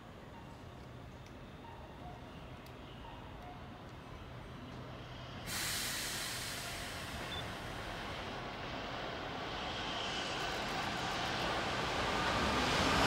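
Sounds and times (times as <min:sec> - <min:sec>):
electric train rail noise: 0:00.1 - 0:13.0
broad hiss: 0:05.5 - 0:08.0.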